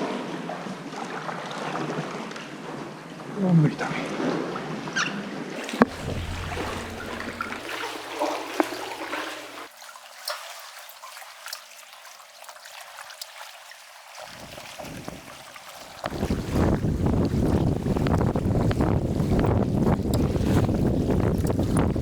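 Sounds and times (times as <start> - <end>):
sea water trickling and lapping: 5.6 - 22.0.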